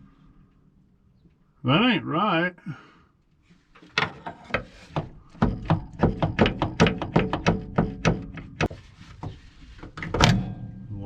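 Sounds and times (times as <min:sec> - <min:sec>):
gear shifter knocking against cab: 0:04.9 - 0:08.7.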